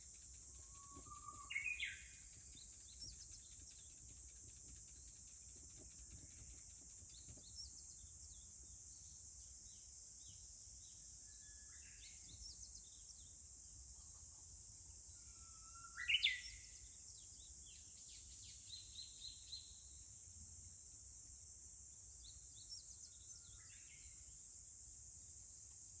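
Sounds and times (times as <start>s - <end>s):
bush warbler singing: 0.0s - 8.5s
cicadas droning: 0.0s - 12.2s.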